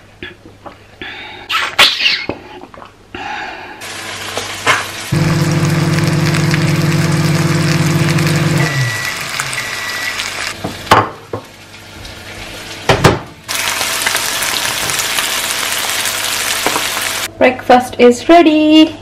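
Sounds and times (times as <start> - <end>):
food sizzling in a pan: 3.8 - 17.3.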